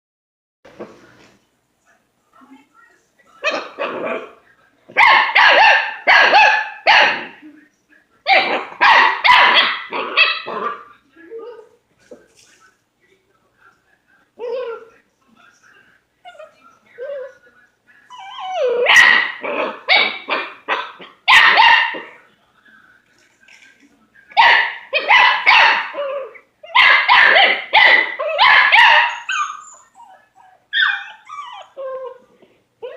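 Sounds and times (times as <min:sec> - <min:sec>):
puppy barking: 0:03.4 - 0:04.3, 0:05.0 - 0:07.4, 0:08.3 - 0:10.9, 0:18.3 - 0:22.2, 0:24.3 - 0:31.8
puppy yipping: 0:24.4 - 0:32.2.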